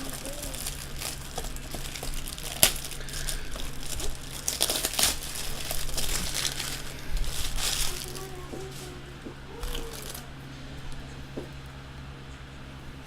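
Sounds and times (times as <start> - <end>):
plastic sleeves crinkling: 0.0 - 10.4.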